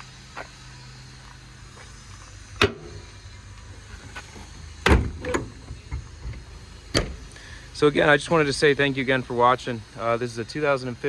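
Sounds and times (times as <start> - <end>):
truck engine humming: 0.0 - 11.0
heavy thumps: 3.9 - 7.5.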